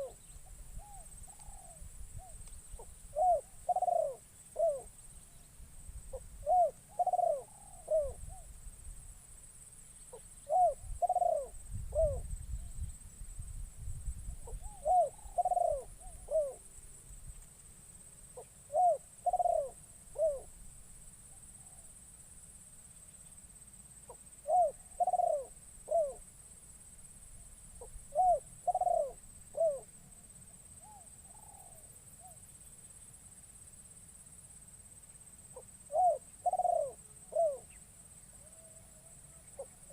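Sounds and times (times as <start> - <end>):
dove cooing: 0.0 - 0.2, 0.8 - 4.9, 6.1 - 8.5, 10.1 - 12.4, 14.4 - 16.6, 18.4 - 20.5, 24.1 - 26.2, 27.8 - 29.9, 30.8 - 32.4, 35.6 - 37.8, 38.4 - 39.9.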